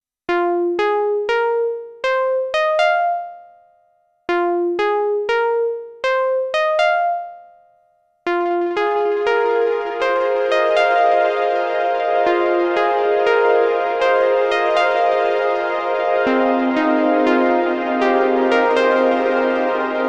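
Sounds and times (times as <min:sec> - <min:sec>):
overlapping repeating synth notes: 0:00.3 - 0:03.6, 0:04.3 - 0:07.5, 0:08.3 - 0:20.0
plucky bell-like synthesizer phrase: 0:04.3 - 0:07.5, 0:08.3 - 0:20.0.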